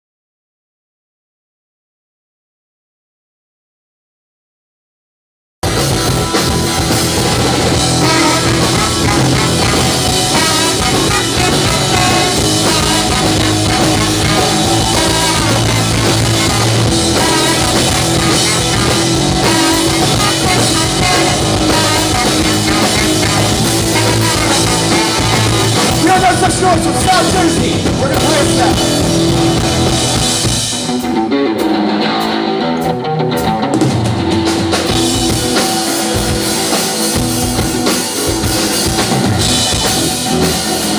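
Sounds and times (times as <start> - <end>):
bass guitar: 5.6 - 40.9
distorted electric guitar: 5.6 - 40.9
drum kit: 5.6 - 40.9.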